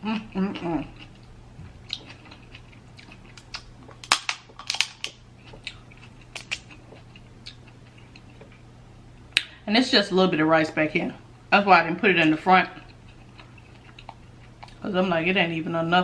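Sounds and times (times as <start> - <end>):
crab shells cracking: 2.0 - 6.8.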